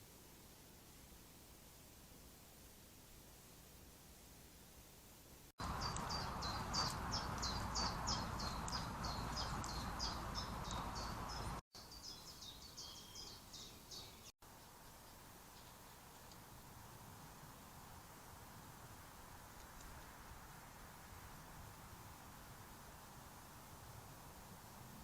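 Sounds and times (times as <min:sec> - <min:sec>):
microphone hiss: 0:00.0 - 0:07.4, 0:08.2 - 0:25.0
small birds chirping: 0:05.6 - 0:16.6.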